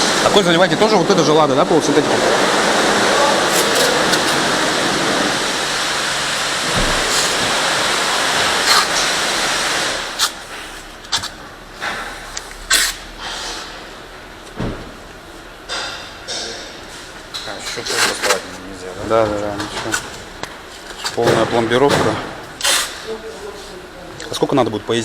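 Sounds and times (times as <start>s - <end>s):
loud rushing noise: 0.0s - 10.3s.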